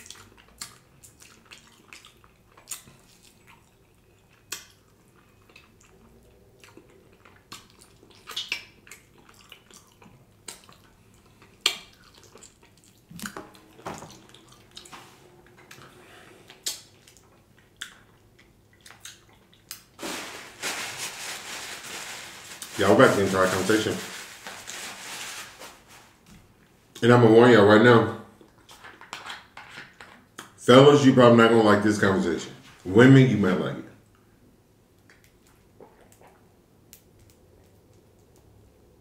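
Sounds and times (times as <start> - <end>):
lip smacks: 0.0 - 15.9, 16.5 - 20.0
wet chewing: 0.0 - 20.0.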